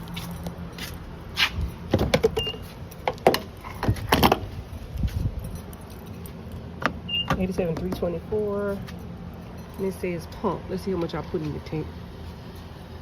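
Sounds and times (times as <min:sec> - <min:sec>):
keys jangling: 0:05.0 - 0:06.7.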